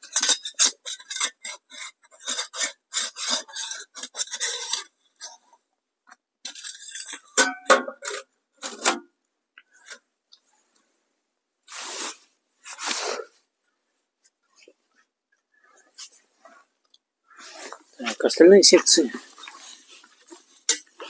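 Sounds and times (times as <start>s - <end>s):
sheet metal scraping and clinking: 6.5s - 9.0s.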